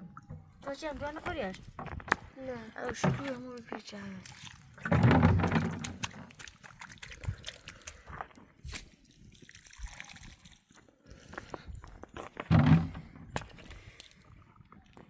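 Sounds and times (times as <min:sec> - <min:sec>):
liquid trickling and dripping: 0:02.9 - 0:12.2.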